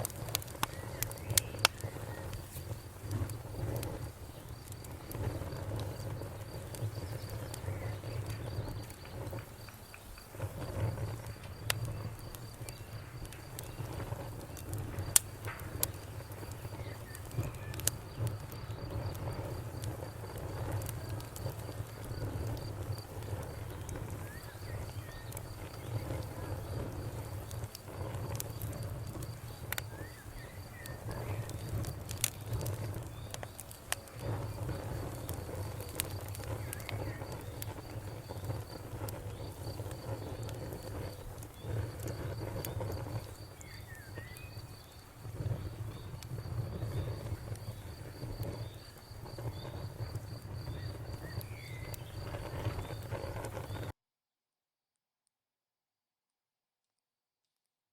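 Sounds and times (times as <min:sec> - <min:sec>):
campfire crackling and popping: 0:00.0 - 0:53.9
birds chirping: 0:00.6 - 0:02.5, 0:23.6 - 0:26.4.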